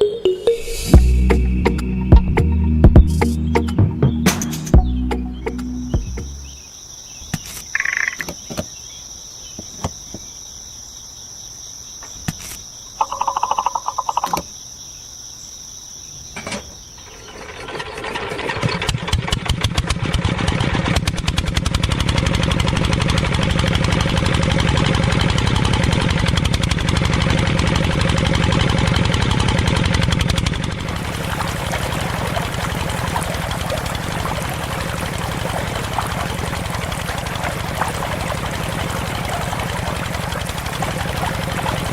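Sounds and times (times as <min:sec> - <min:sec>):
insect chirring: 0:06.2 - 0:17.3, 0:30.9 - 0:41.9
small engine pulsing: 0:17.1 - 0:41.9.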